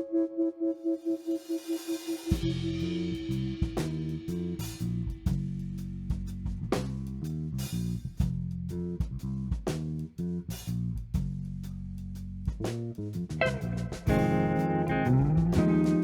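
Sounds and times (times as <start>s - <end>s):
guitar riff: 13.4s - 16.0s.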